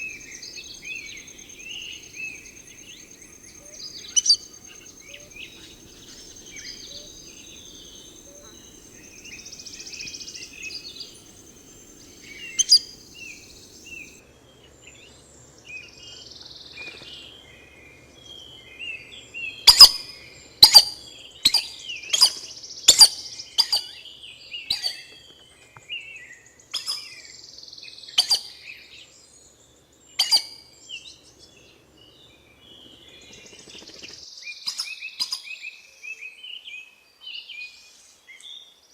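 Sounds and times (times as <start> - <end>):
sharp high bird calls: 0.0 - 14.2
soft bird chirps: 0.0 - 14.2.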